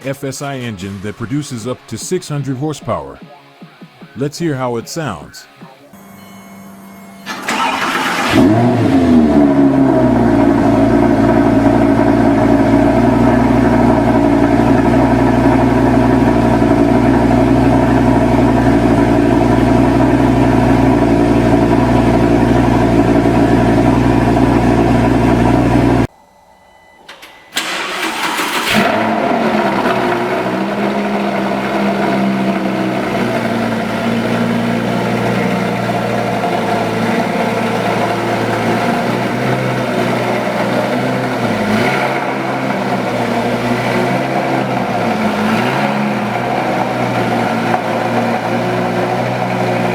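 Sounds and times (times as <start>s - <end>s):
engine starting with loud burst: 7.2s - 22.1s, 27.1s - 49.9s
engine running steadily: 7.2s - 26.1s, 27.6s - 49.9s.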